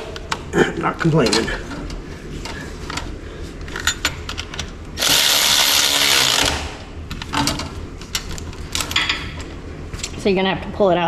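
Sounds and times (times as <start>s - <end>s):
power tool running: 5.0s - 6.9s.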